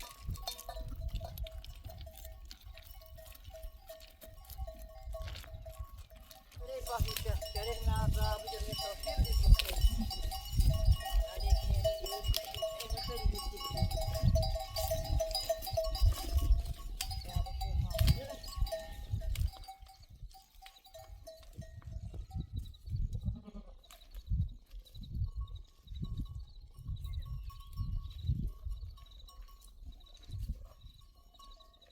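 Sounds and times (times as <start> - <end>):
sheep bleating: 23.3 - 23.8.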